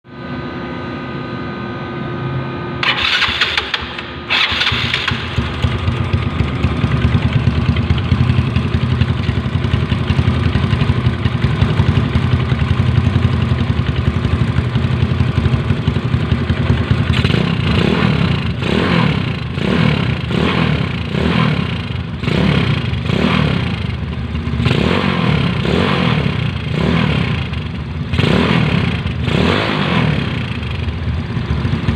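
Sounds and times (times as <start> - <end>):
scooter engine idling and revving: 2.8 - 31.9.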